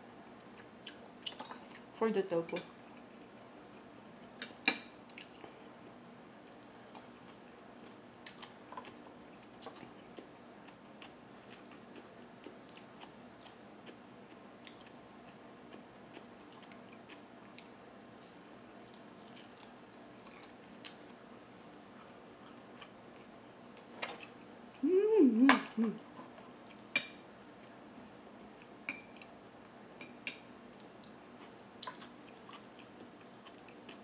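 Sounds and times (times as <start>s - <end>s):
faint steady hum: 0.0s - 34.0s
chewing and biting food: 7.0s - 21.2s, 30.8s - 34.0s.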